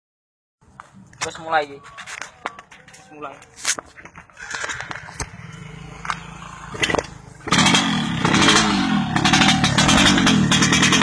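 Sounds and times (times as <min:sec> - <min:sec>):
two-stroke motorcycle engine idling: 0:05.3 - 0:11.0.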